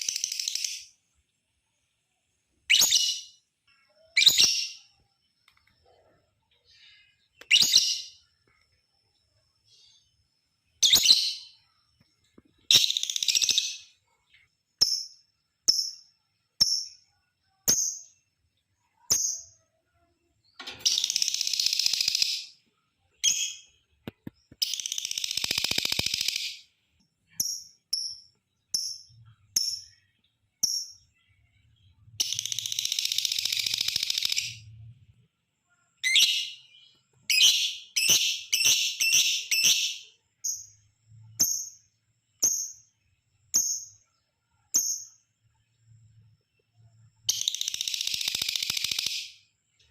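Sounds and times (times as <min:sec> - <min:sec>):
lovebird chirping: 0:00.0 - 0:01.8, 0:02.6 - 0:49.9
lovebird rapid chattering: 0:12.6 - 0:13.8, 0:20.8 - 0:22.5, 0:23.2 - 0:26.6, 0:32.2 - 0:34.6, 0:47.3 - 0:49.4.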